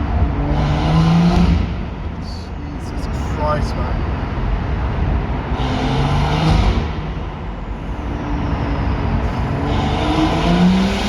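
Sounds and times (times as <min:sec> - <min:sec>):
car engine accelerating hard: 0:00.0 - 0:02.2, 0:05.3 - 0:07.5, 0:08.1 - 0:11.0.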